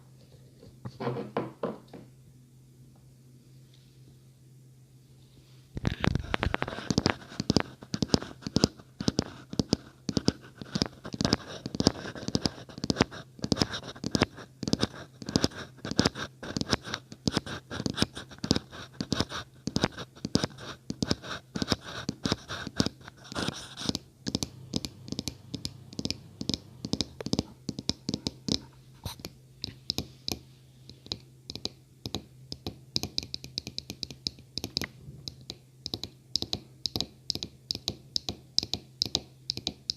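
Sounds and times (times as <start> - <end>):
tapping and scratching on object: 5.9 - 30.4, 31.0 - 39.9.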